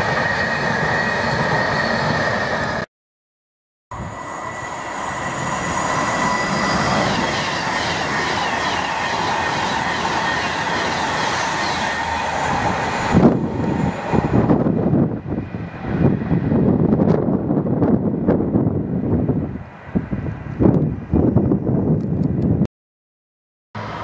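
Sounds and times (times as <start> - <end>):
electric train passing at speed: 0.0 - 2.9, 3.9 - 22.7, 23.8 - 24.0
wind noise on microphone: 3.9 - 4.4, 12.4 - 22.7.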